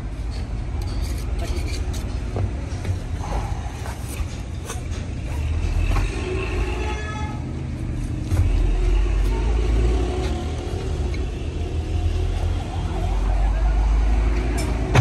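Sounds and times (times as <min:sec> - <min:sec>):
sharp knocks and clanks: 0:00.2 - 0:06.4, 0:14.4 - 0:15.0.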